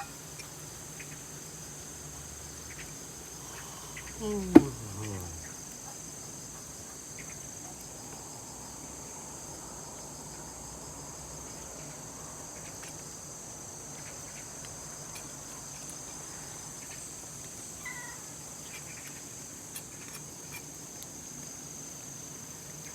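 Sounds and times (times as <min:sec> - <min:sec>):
crickets chirping: 0:00.0 - 0:22.9
faint call: 0:03.4 - 0:05.6.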